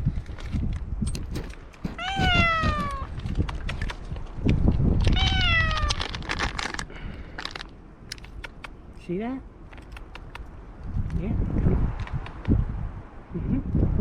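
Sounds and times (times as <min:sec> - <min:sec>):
clicks and rustling: 0:00.1 - 0:05.2
cat meowing: 0:02.0 - 0:03.1, 0:05.1 - 0:06.0.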